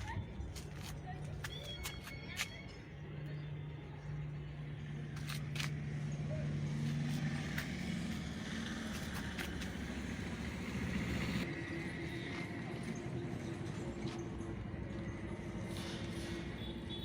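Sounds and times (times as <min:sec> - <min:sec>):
motor engine running: 0:04.4 - 0:16.6.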